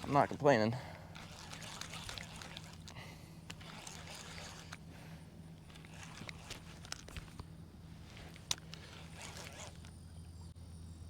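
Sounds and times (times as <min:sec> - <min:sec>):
handling rustling: 0:00.0 - 0:10.2
steady low hum: 0:00.0 - 0:11.0
small clicks: 0:05.6 - 0:10.1.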